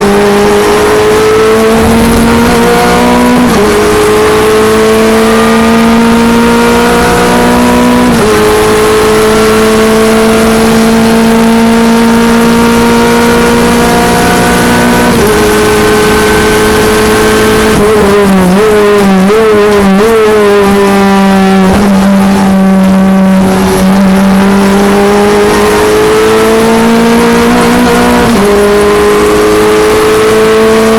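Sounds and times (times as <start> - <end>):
race car engine at full throttle: 0.0 - 30.9.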